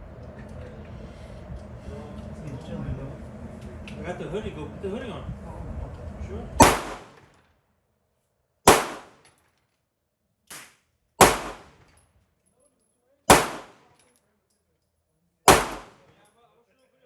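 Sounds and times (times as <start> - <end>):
pistol shots echoing: 6.6 - 7.2, 8.7 - 9.2, 11.2 - 11.8, 13.3 - 13.9, 15.5 - 16.1.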